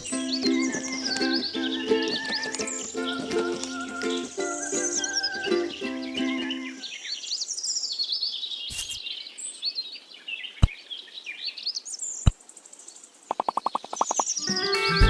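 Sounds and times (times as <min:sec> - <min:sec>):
small birds chirping and twittering: 0:00.0 - 0:15.0
rapid ticks: 0:13.3 - 0:14.3
sharp clicks: 0:13.3 - 0:14.3.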